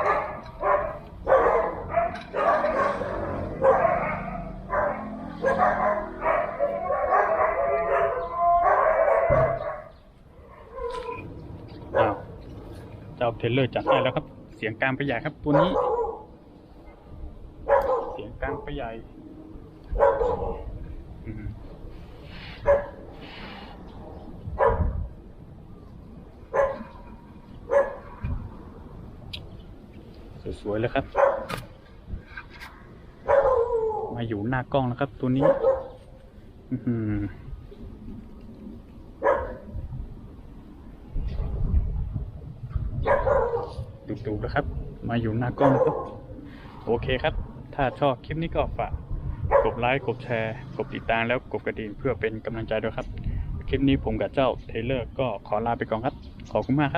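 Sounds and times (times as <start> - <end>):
dog barking: 0.0 - 10.0, 11.9 - 12.3, 13.8 - 14.2, 15.5 - 16.3, 17.6 - 18.7, 20.0 - 20.6, 22.6 - 23.0, 24.6 - 24.9, 26.5 - 26.9, 27.7 - 28.2, 31.1 - 31.5, 33.2 - 34.1, 35.4 - 36.0, 39.2 - 39.7, 43.0 - 43.9, 45.6 - 46.3, 49.5 - 49.8.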